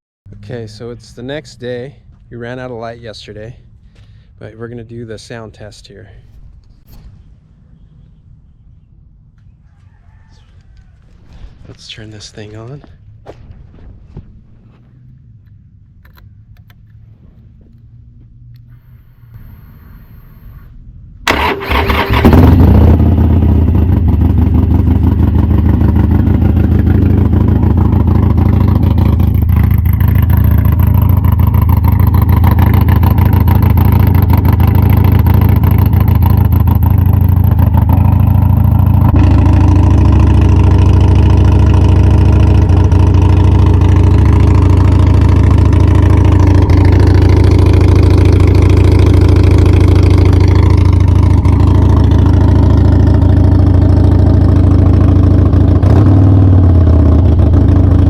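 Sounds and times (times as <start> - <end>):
motorcycle engine idling: 17.6 - 58.0
motorcycle starter cranking: 21.3 - 24.2.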